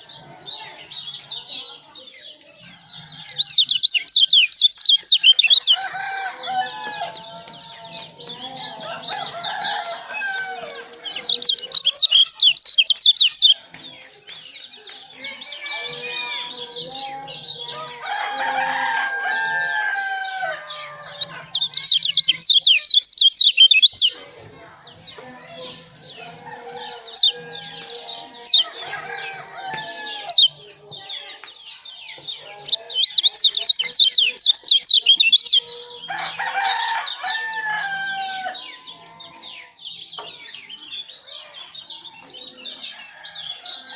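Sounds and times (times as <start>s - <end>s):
bird chirps: 1.0s - 5.8s, 11.0s - 15.2s, 21.0s - 24.2s, 27.0s - 37.8s
songbird trilling: 3.2s - 5.8s, 11.0s - 13.6s, 21.0s - 24.2s, 31.6s - 35.7s.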